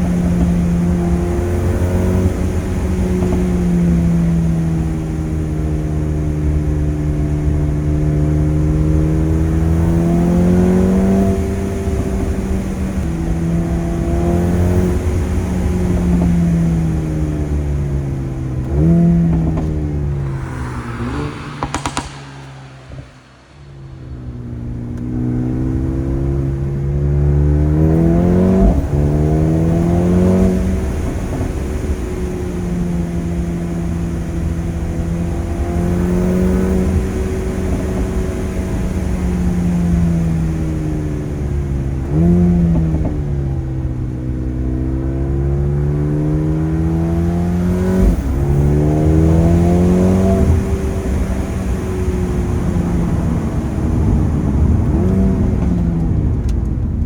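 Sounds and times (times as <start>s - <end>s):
car engine accelerating hard: 0.0s - 57.0s
exhaust cracks: 19.2s - 25.6s
engine rev blip: 19.4s - 25.6s.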